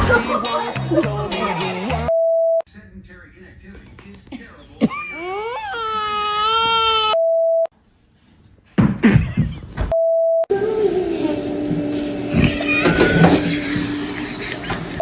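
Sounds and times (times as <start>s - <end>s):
long wailing cry: 12.3s - 14.4s.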